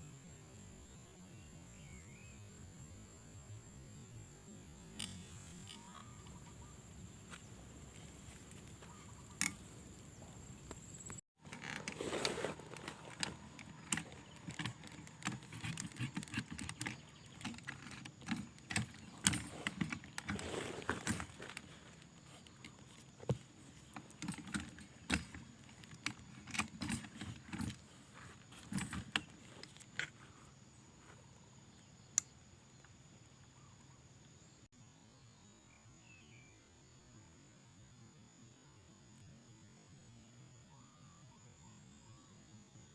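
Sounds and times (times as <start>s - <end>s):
handling clicks and knocks: 8.0s - 9.8s, 10.7s - 30.2s.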